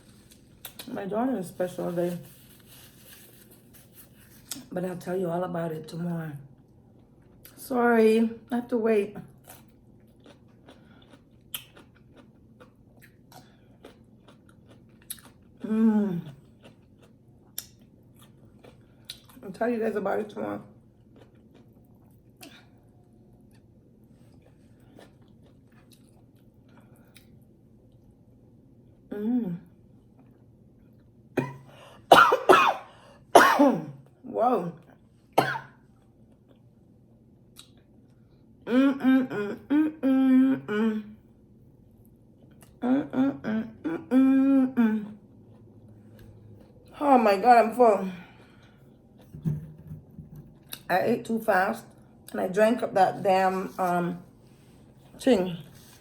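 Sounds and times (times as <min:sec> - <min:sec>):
person chewing food: 0:00.0 - 0:00.9, 0:09.3 - 0:19.4, 0:20.8 - 0:28.2, 0:35.9 - 0:36.8, 0:45.1 - 0:47.0
person humming mmm: 0:29.1 - 0:29.7, 0:38.7 - 0:41.2, 0:42.8 - 0:45.2.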